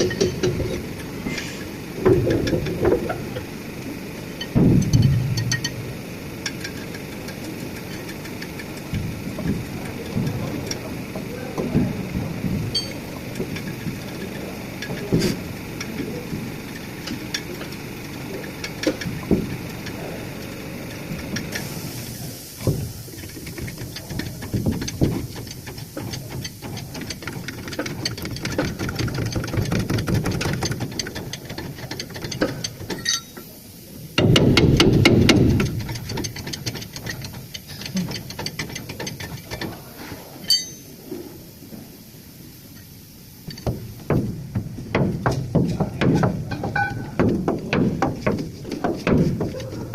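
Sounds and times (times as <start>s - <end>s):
metal knocks and clinks: 12.7s - 13.8s, 32.2s - 33.5s, 40.4s - 41.0s, 45.2s - 49.6s.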